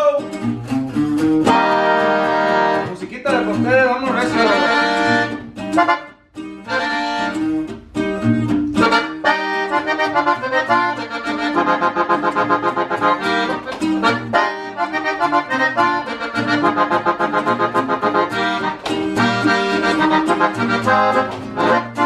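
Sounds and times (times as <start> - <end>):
accordion melody: 0.0 - 22.0
bass accompaniment: 0.0 - 22.0
rhythmic guitar: 0.0 - 22.0.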